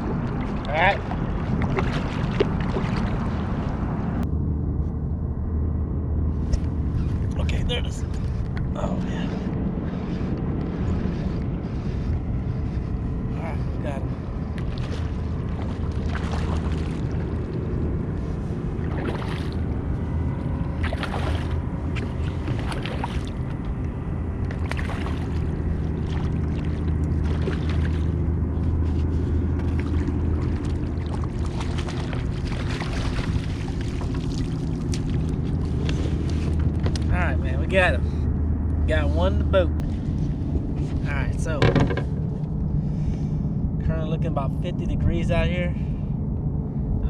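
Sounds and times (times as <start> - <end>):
water splashes and knocks: 0.0 - 3.9, 14.5 - 17.6, 18.8 - 19.7, 20.8 - 23.8, 24.4 - 28.2, 29.6 - 37.2, 41.5 - 42.3
wind buffeting microphone: 0.0 - 47.0.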